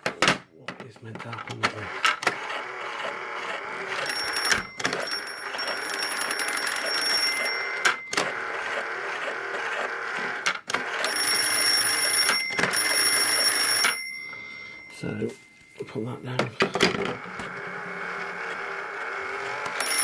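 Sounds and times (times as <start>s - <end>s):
toy telephone bell ringing: 3.4s - 10.1s, 10.7s - 16.2s, 19.2s - 20.0s.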